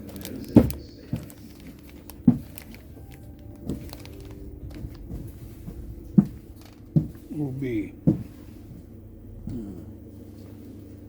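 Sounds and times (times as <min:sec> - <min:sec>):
steady low hum: 0:00.0 - 0:11.0
dull knocks: 0:00.4 - 0:07.4, 0:08.0 - 0:08.8.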